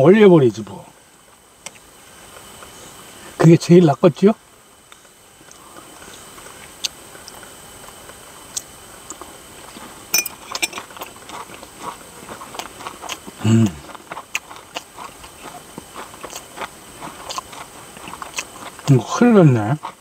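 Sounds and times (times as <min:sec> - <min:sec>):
crunching and chewing: 0:04.9 - 0:20.0.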